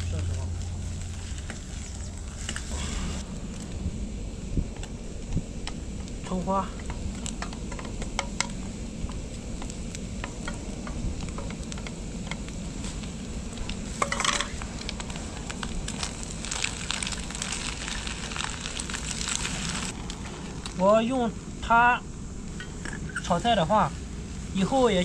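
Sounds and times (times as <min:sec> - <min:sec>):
eggs sizzling in a pot: 0:03.2 - 0:21.0.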